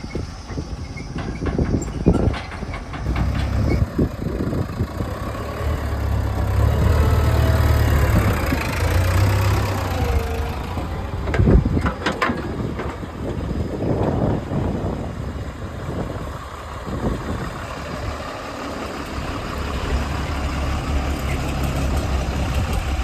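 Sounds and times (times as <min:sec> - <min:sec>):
diesel engine droning: 0:00.0 - 0:23.0
knocks and rattles: 0:00.5 - 0:14.7.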